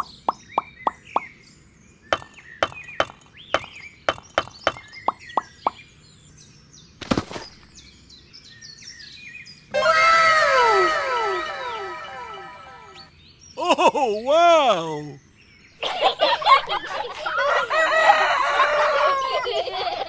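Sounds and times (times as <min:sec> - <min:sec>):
faint birdsong: 0:00.0 - 0:20.0
bright swell with falling whistles: 0:09.7 - 0:13.1.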